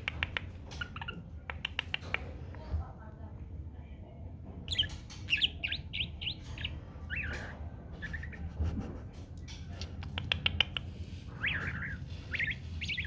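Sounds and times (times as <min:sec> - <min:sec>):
bird chirping: 0:00.0 - 0:02.3, 0:04.7 - 0:08.5, 0:09.4 - 0:13.0.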